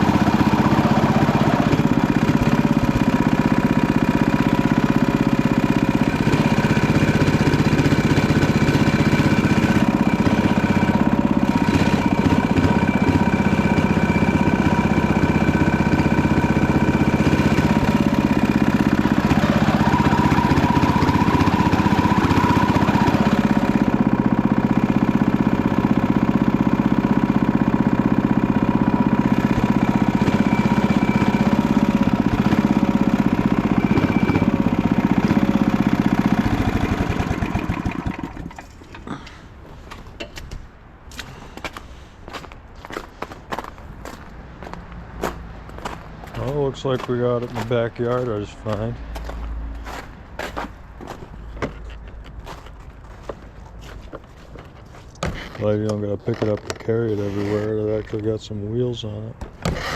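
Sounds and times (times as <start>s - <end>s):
small engine running: 0.0s - 39.4s, 53.2s - 58.3s, 59.6s - 59.9s.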